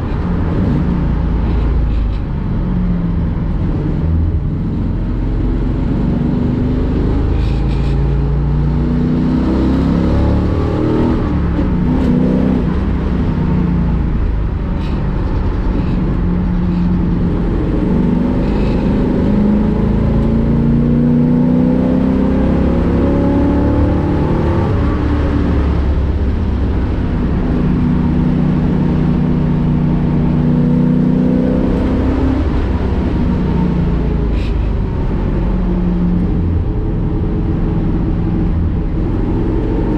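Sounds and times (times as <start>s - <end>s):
race car engine revving: 3.4s - 39.9s.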